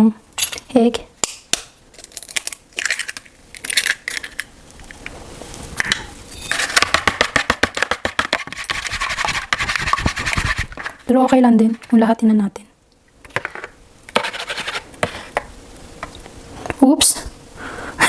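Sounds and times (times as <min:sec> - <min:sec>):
egg beaten in a bowl: 0:06.5 - 0:11.0.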